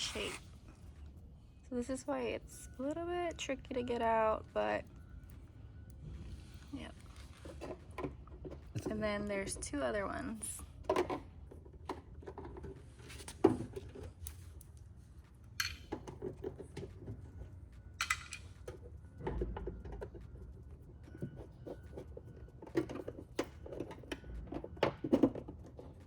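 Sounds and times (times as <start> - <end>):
screwdriver clicks and clatters: 18.0 - 18.6.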